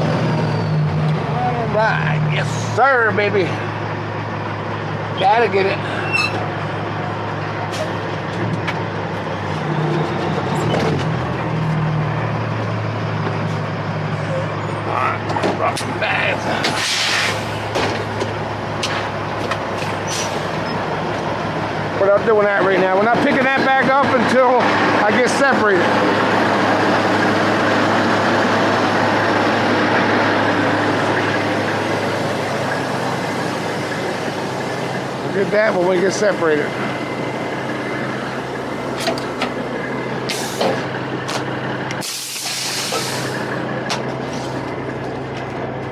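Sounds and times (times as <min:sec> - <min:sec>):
diesel truck engine running: 0:00.0 - 0:45.9
rushing noise: 0:15.9 - 0:18.1.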